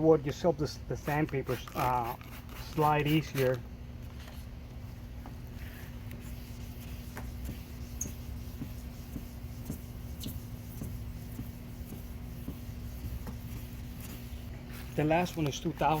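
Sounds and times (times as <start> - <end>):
steady low hum: 0.0 - 16.0
sandpaper scratching plastic: 1.1 - 3.6, 6.2 - 16.0.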